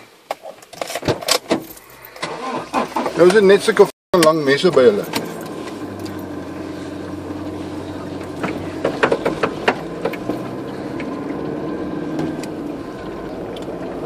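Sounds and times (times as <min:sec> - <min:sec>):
vehicle engine running: 0:04.3 - 0:14.0.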